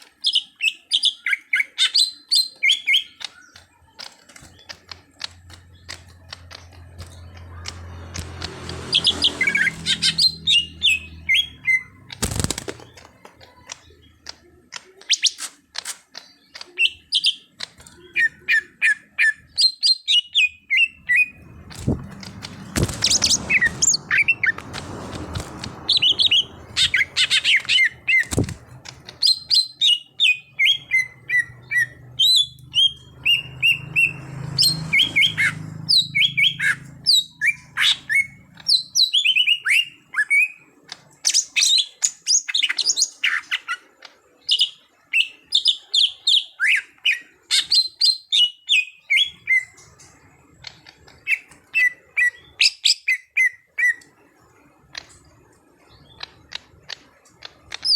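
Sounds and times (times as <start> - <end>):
bird singing chirps and whistles: 8.9 - 12.0, 29.1 - 43.8.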